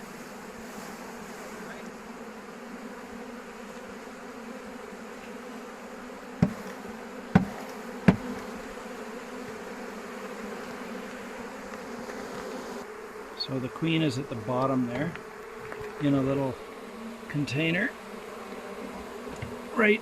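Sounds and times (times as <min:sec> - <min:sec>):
honeybees buzzing: 0:00.0 - 0:20.0
sharp knocks: 0:06.4 - 0:08.5.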